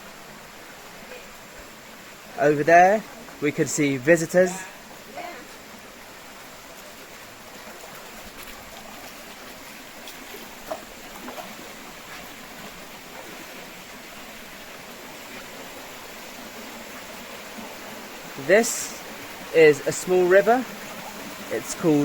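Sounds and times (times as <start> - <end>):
small river rushing: 0.0 - 22.0.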